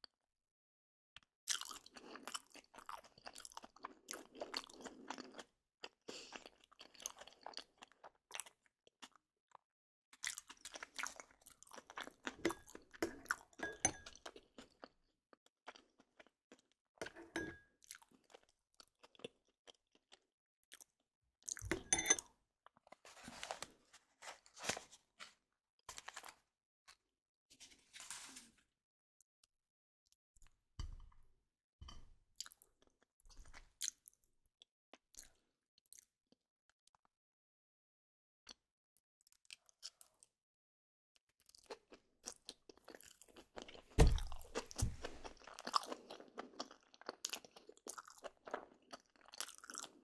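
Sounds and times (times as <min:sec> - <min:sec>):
crunching and chewing: 0:01.2 - 0:21.8, 0:39.3 - 0:40.4, 0:41.2 - 0:50.0.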